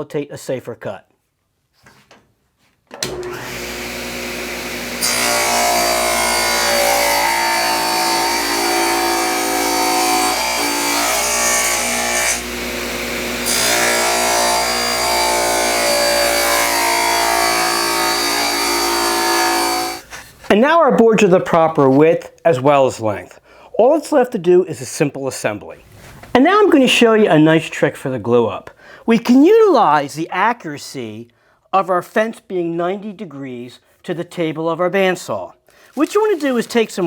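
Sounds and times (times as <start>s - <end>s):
saw blade cutting wood: 3.0s - 20.0s, 35.9s - 37.0s
table saw motor humming: 3.0s - 20.0s.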